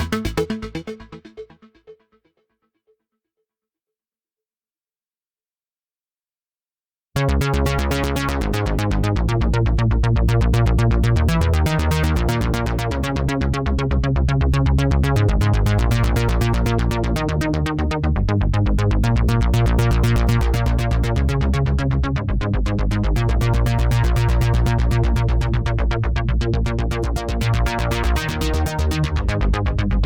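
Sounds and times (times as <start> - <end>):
heavy synth bass: 0.0 - 1.7, 7.3 - 30.0
synthesizer arpeggio: 0.0 - 2.1.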